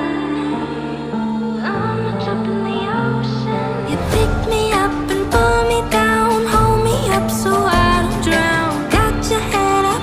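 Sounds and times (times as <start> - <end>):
pop song with singing: 0.0 - 10.0.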